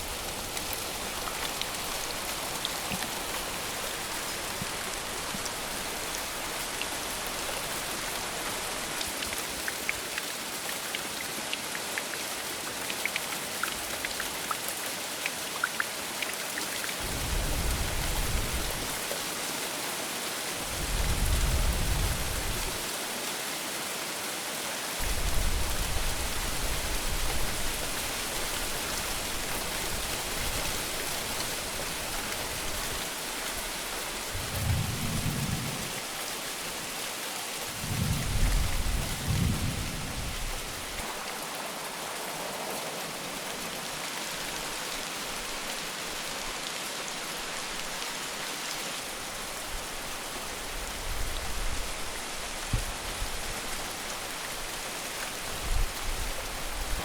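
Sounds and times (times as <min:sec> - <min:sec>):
heavy rain: 0:00.0 - 0:57.0
thunder rumbling: 0:34.4 - 0:36.0, 0:37.8 - 0:40.6.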